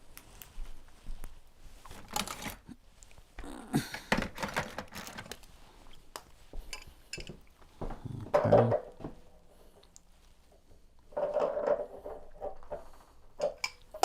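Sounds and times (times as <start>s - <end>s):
tools and fittings clicking and knocking: 11.1s - 14.0s.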